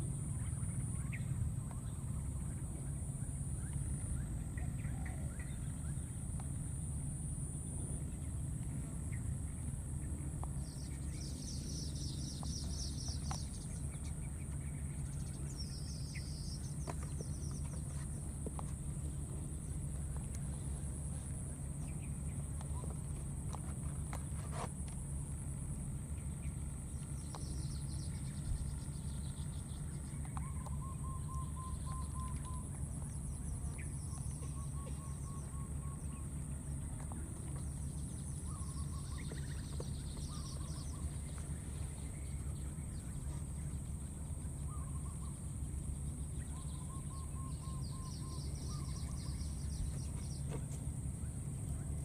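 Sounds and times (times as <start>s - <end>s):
birds calling: 0.1s - 52.0s.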